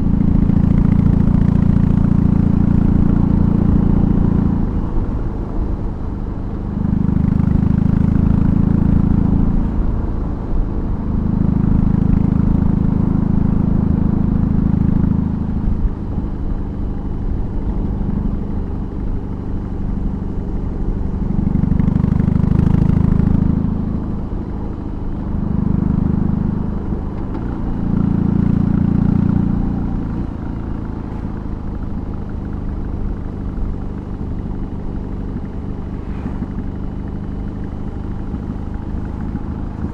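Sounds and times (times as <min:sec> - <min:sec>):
motorcycle exhaust revving: 0:16.5 - 0:39.9.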